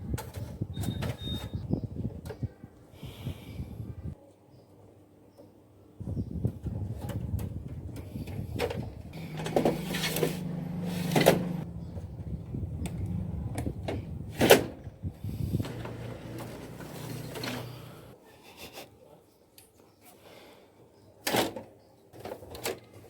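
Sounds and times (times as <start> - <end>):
low motor hum: 9.2 - 14.3.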